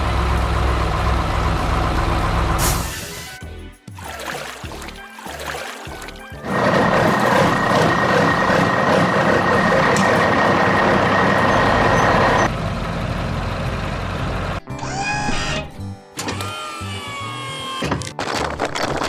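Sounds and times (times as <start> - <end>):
heavy truck engine whining: 0.0 - 3.2, 6.5 - 14.6.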